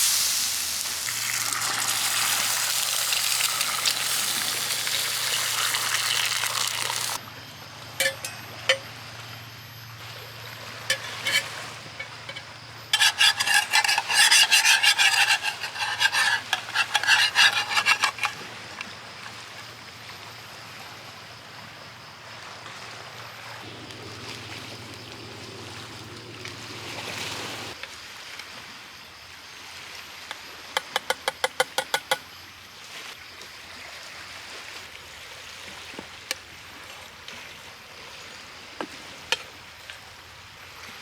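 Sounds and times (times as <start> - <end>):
food sizzling in a frying pan: 0.0 - 7.2
utensil stirring in a pan: 0.0 - 7.2, 13.0 - 18.4.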